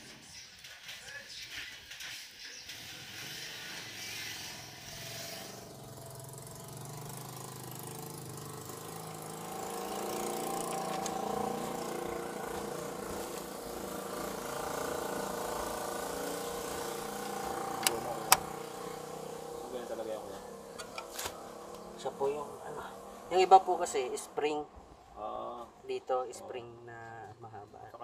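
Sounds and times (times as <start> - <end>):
vehicle engine running: 2.8 - 25.5.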